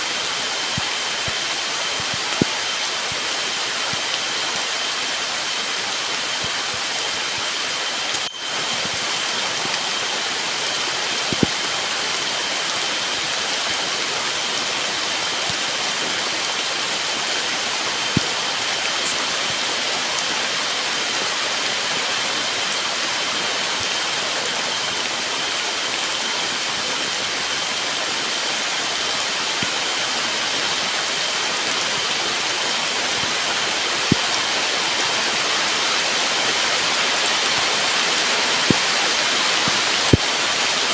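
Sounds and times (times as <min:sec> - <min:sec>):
heavy rain falling: 0:00.0 - 0:40.9
faint high-pitched tone: 0:08.0 - 0:11.5.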